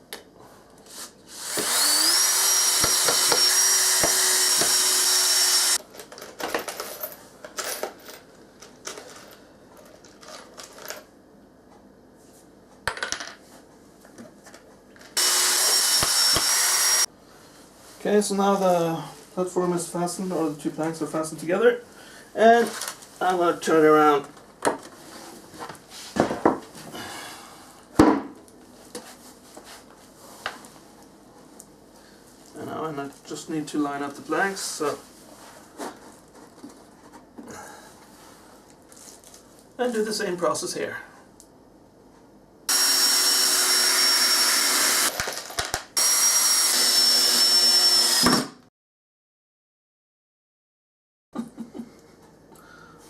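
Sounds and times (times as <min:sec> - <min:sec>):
power drill whining into wood: 0:01.4 - 0:05.8, 0:15.2 - 0:17.1, 0:42.7 - 0:45.2, 0:46.0 - 0:48.6.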